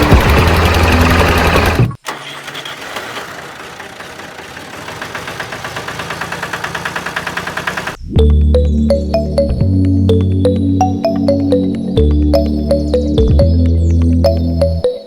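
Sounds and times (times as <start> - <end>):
small motor ticking: 0.0 - 1.9, 2.8 - 8.0
background music: 8.1 - 15.0.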